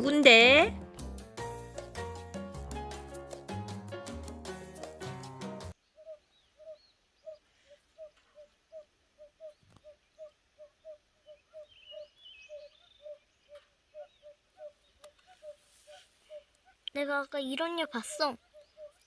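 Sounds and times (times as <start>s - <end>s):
high bird chirps: 8.0s - 19.0s.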